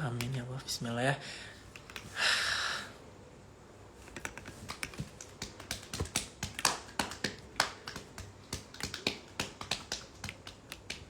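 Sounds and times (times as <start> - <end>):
sharp clicks and taps: 4.1 - 11.0.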